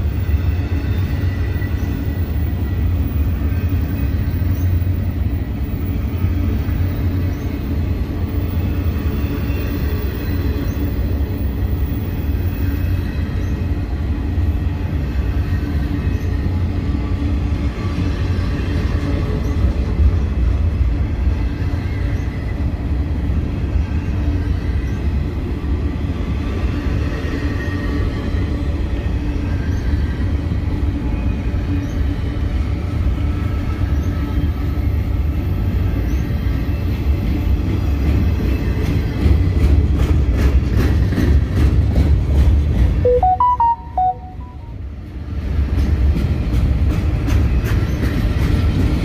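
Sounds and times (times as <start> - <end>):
steel wheels rumbling on rail: 0.0 - 43.0, 45.0 - 49.0.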